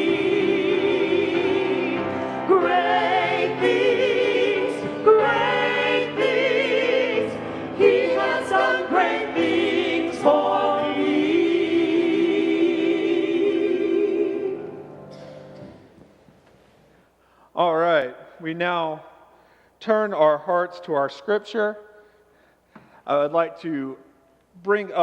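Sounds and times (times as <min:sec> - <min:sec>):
choir singing sustained chords: 0:00.0 - 0:15.7.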